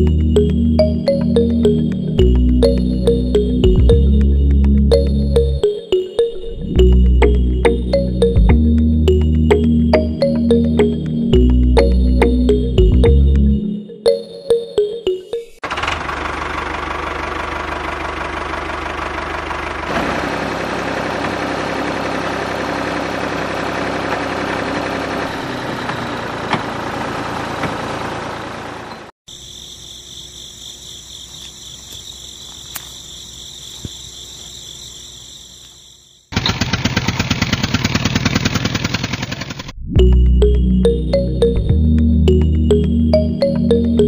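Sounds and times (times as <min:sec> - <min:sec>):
fast even rattle: 0:36.3 - 0:39.8.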